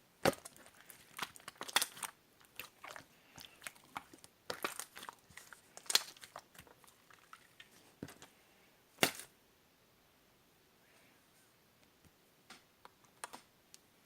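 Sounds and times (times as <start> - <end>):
slime popping: 0.2 - 7.7.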